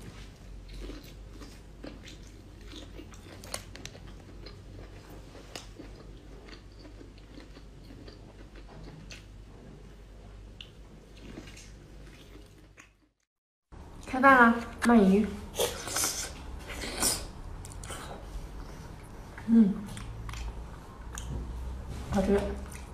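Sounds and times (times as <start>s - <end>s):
person chewing wetly: 0.2s - 9.4s, 10.6s - 13.1s, 17.6s - 21.4s.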